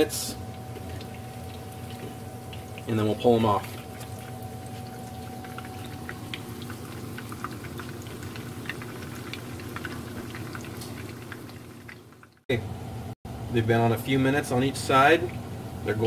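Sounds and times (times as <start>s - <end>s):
food sizzling in oil: 3.6s - 12.4s.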